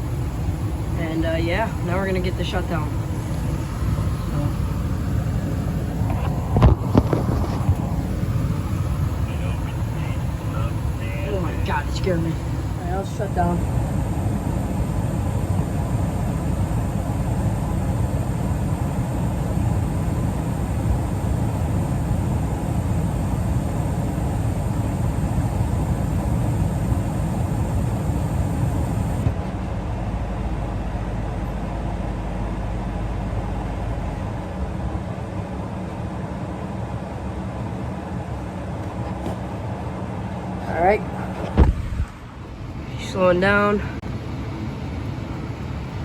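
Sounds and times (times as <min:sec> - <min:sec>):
high hiss: 0:00.0 - 0:29.2
furnace fan whirring: 0:00.0 - 0:46.0.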